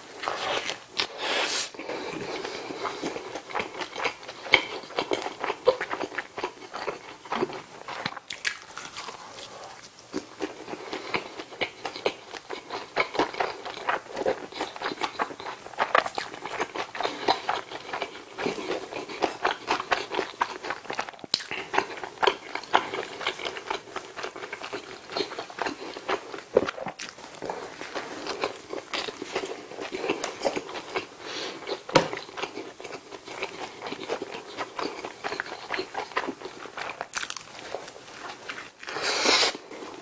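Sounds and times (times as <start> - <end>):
close chewing with sticky mouth sounds: 1.8 - 40.0.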